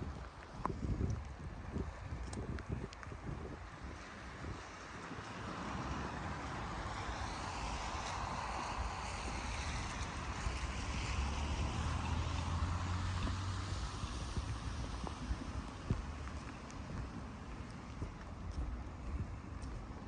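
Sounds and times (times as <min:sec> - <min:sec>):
tyres hissing on wet road: 0:04.0 - 0:20.0.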